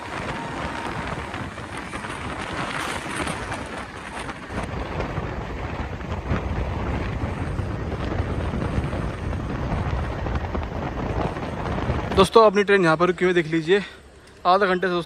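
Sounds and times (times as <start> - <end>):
train running noise: 0.0 - 15.0
wind buffeting microphone: 0.0 - 15.0.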